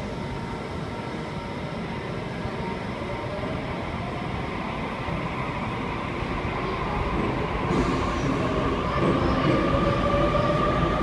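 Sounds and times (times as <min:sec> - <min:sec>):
electric train pulling out: 0:07.0 - 0:11.0.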